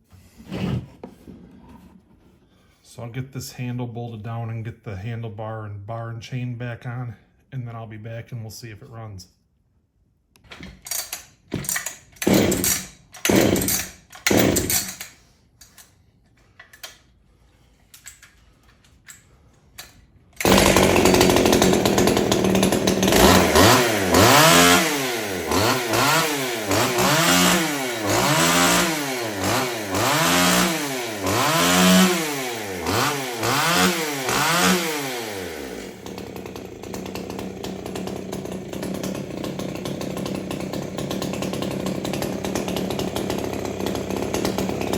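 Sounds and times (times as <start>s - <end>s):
starter rope pulls: 10.9s - 15.2s, 20.4s - 44.9s
chainsaw engine revving and idling: 11.6s - 15.0s, 20.4s - 44.9s.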